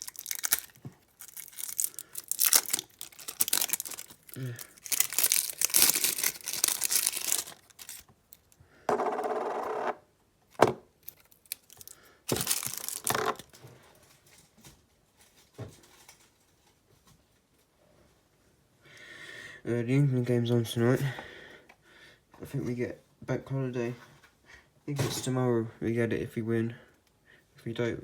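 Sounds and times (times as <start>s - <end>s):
adhesive tape tearing: 0.0s - 8.0s.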